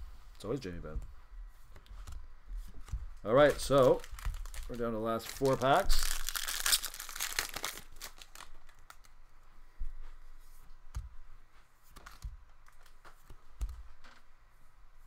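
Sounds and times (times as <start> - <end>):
trading cards clicking and snapping: 11.9 - 14.2.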